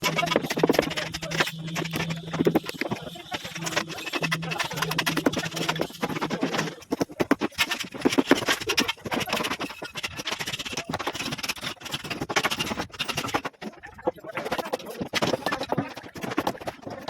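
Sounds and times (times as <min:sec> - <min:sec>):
low steady hum: 0:00.0 - 0:07.0
formwork materials clattering: 0:00.0 - 0:17.0.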